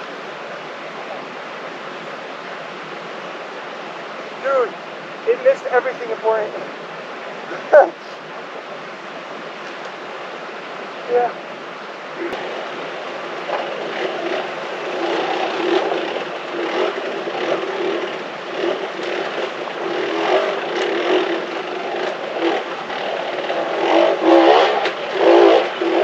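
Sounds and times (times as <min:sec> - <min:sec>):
dirt bike engine revving: 0:12.1 - 0:26.0.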